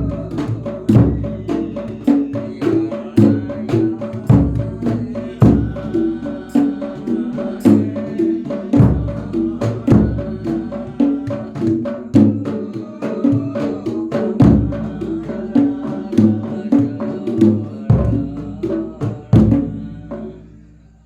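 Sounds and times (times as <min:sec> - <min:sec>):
deep bass drum booms: 0:00.0 - 0:01.8, 0:08.8 - 0:11.3
quick hand-drum strokes: 0:00.0 - 0:19.8.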